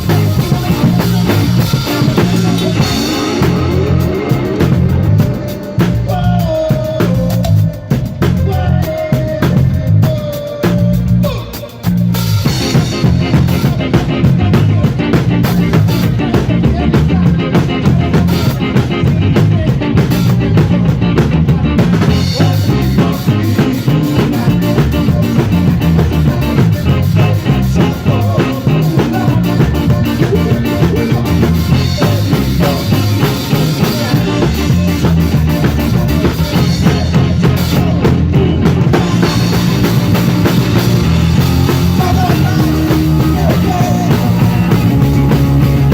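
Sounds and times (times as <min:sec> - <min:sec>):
drum kit: 0:00.0 - 0:45.9
live rock band playing: 0:00.0 - 0:45.9.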